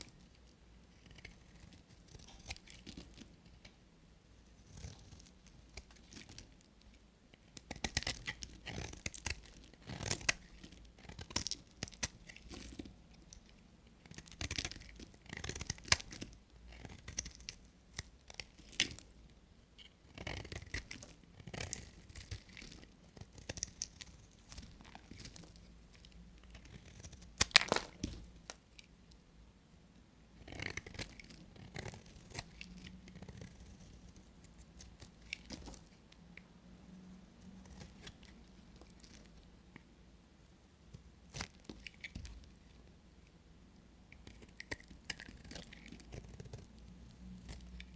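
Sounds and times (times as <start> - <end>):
knife cutting through soap: 7.6 - 13.5, 14.1 - 19.1.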